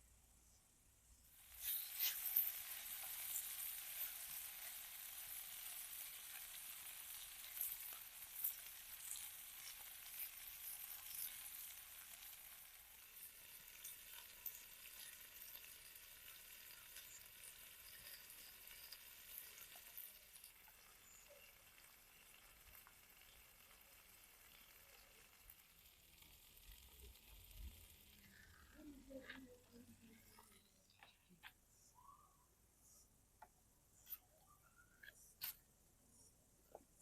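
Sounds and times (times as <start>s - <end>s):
food sizzling in oil: 1.3s - 30.6s.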